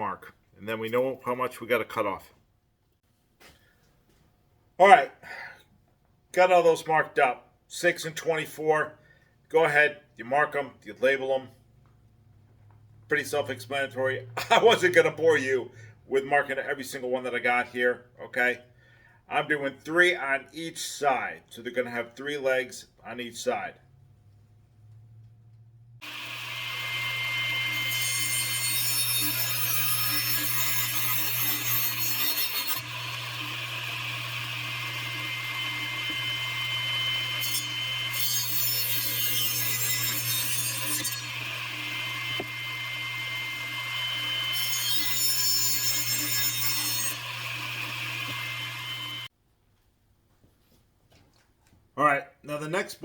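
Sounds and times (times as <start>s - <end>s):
electric saw cutting wood: 26.0s - 49.3s.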